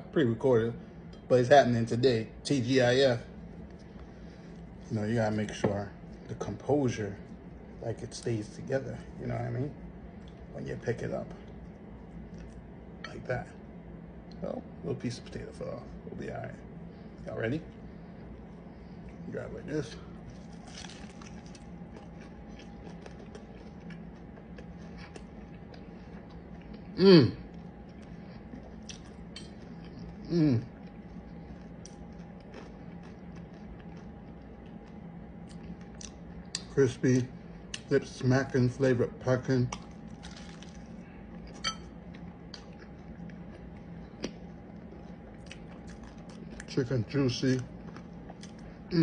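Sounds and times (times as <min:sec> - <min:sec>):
low steady hum: 0:00.0 - 0:49.0
person chewing crispy food: 0:18.4 - 0:38.2, 0:39.7 - 0:49.0.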